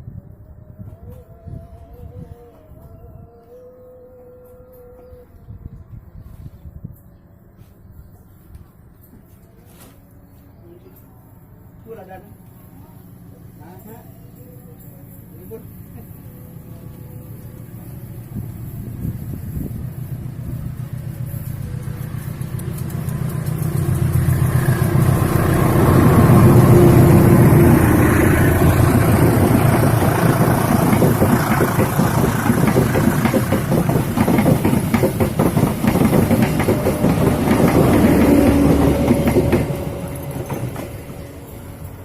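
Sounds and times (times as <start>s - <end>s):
diesel engine hum: 12.4s - 42.0s
train wheels clattering on rails: 17.4s - 42.0s.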